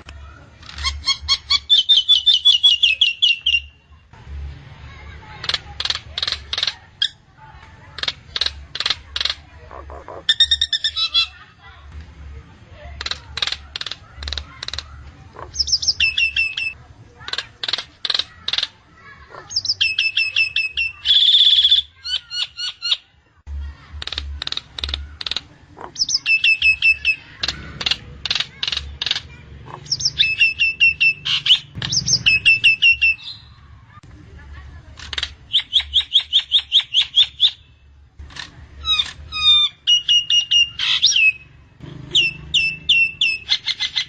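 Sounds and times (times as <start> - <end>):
myna clicking and whistling: 0.6 - 3.8, 5.4 - 7.2, 13.0 - 23.0, 24.0 - 33.5, 35.0 - 37.6, 38.2 - 41.4.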